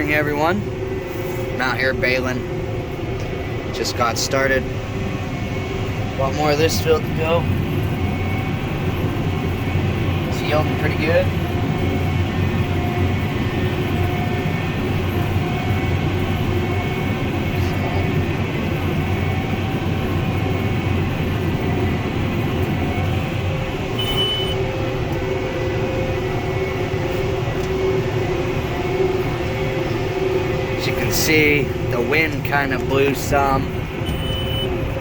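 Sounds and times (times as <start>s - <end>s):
tractor and hay baler running: 0.0s - 35.0s
short high beep: 24.0s - 24.6s, 34.0s - 34.8s.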